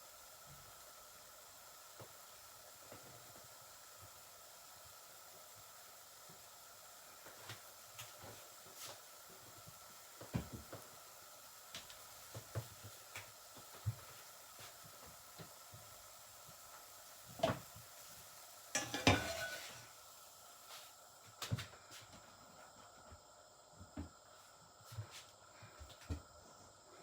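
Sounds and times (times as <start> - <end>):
utensils clinking against dishes: 18.8 - 19.8.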